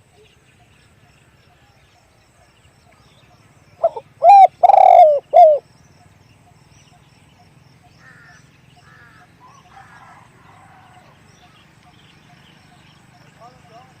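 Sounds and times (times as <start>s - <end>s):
dove cooing: 3.8s - 5.6s.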